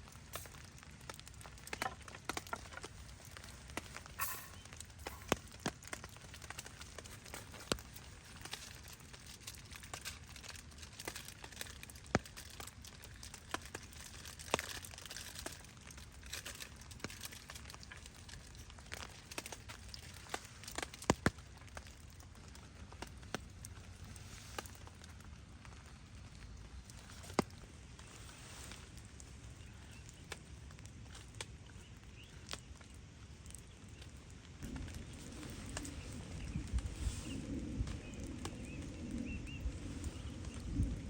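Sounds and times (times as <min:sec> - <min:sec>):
sharp clicks and cracks: 0:00.0 - 0:27.7
rain falling: 0:00.0 - 0:41.0.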